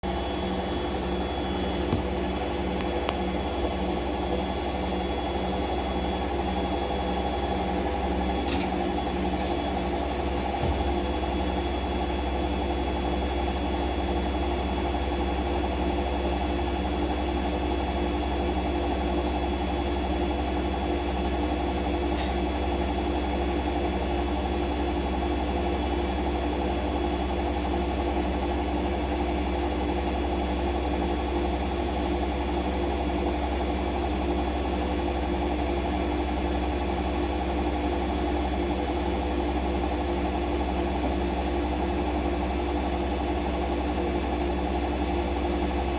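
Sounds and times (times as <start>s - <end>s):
washing machine spinning: 0.0s - 45.9s.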